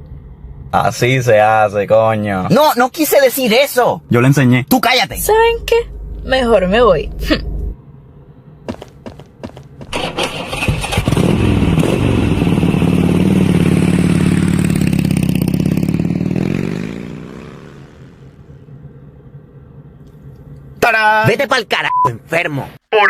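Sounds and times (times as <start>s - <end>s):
vehicle engine starting and driving off: 9.8s - 19.2s.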